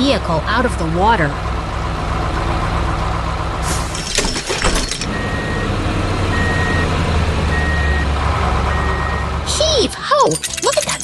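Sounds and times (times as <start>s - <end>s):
truck engine running: 0.0s - 11.0s
rattling clatter: 3.8s - 5.2s, 10.2s - 11.0s
reversing alarm beeps: 5.1s - 5.7s, 6.3s - 6.9s, 7.5s - 8.1s, 8.7s - 9.3s.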